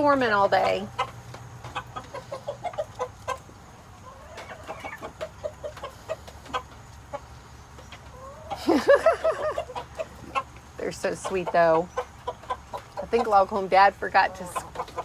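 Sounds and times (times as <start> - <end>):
hens clucking: 0.0 - 15.0
hen rising and falling calls: 1.8 - 13.4.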